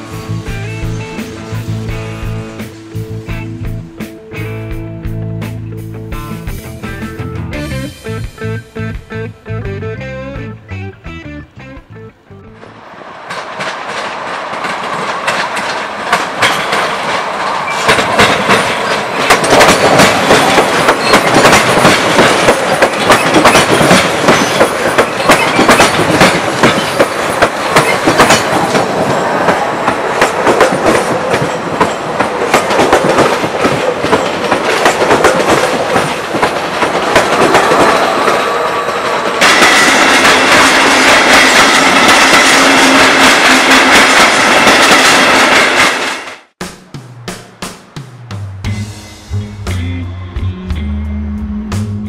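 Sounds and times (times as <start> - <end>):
electric locomotive hauling coaches: 0.0 - 9.1, 12.1 - 46.6
train wheels clattering over switches: 13.3 - 46.5.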